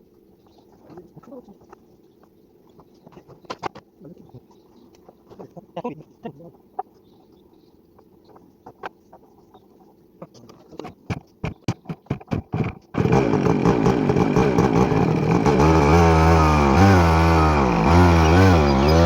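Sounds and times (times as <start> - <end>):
motorcycle engine running loudly: 12.5 - 19.0.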